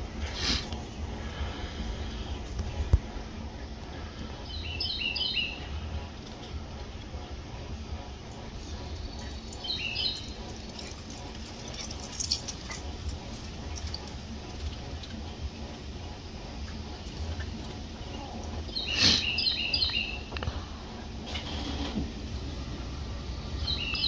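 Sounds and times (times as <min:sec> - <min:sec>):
low background hum: 0:00.0 - 0:24.0
small bird chirping: 0:09.0 - 0:10.4.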